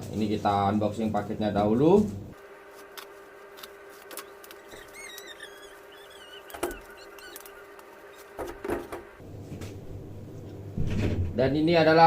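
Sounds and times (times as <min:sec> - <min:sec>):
high warbling squeaks: 0:03.0 - 0:09.2.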